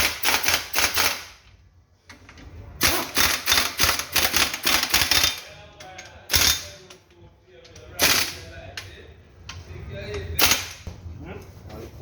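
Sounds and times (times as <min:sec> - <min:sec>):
pneumatic impact wrench hammering: 0:00.0 - 0:01.4, 0:02.8 - 0:05.4, 0:06.3 - 0:06.7, 0:08.0 - 0:08.4, 0:10.4 - 0:10.8.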